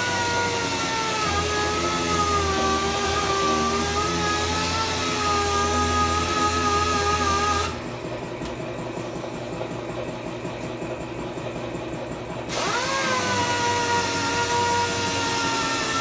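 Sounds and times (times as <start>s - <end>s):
power tool whining: 0.0s - 8.0s, 12.5s - 16.0s.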